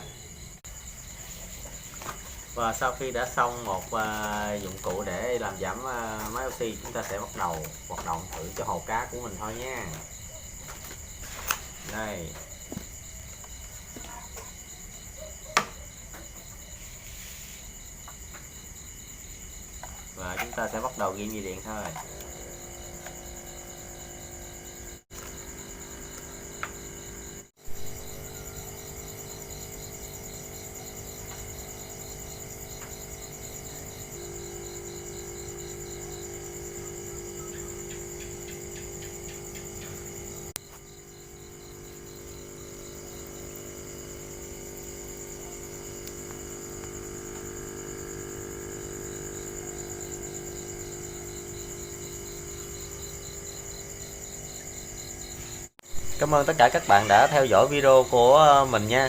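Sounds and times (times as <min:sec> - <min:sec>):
air pump muffled hum: 0:19.8 - 0:54.7.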